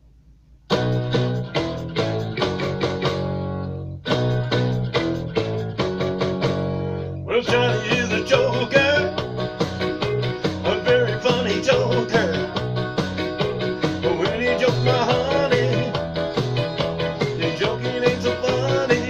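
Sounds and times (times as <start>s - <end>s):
strummed guitar chords: 0.7s - 19.0s
person singing: 7.3s - 9.3s, 10.4s - 12.7s, 13.8s - 16.2s, 17.2s - 19.0s.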